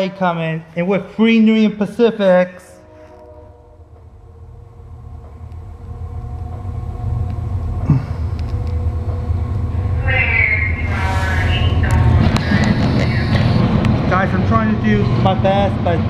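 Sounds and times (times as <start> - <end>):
train engine rumble: 0.0 - 16.0
higher tone: 2.4 - 15.2.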